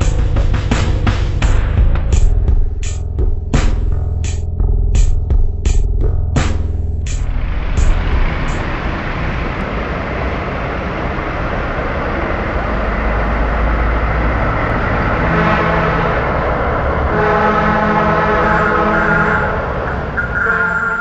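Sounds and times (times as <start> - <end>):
bus engine and road noise: 0.0 - 21.0
steady horn-like tone: 15.0 - 21.0.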